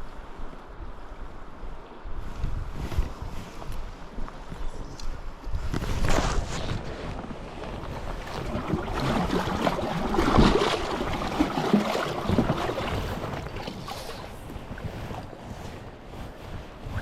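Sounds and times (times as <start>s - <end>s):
wind rumbling on microphone: 0.0s - 17.0s
water splashing around boat: 5.7s - 17.0s.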